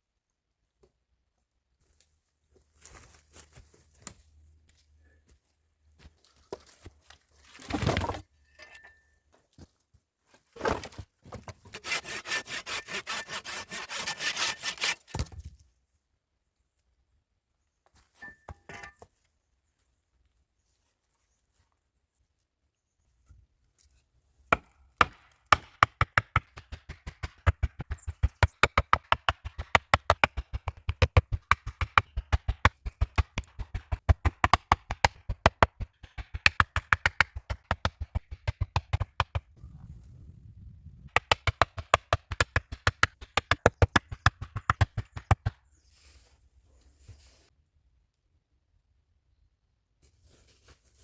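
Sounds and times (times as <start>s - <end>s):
rapid knocks on wood: 25.0s - 39.5s.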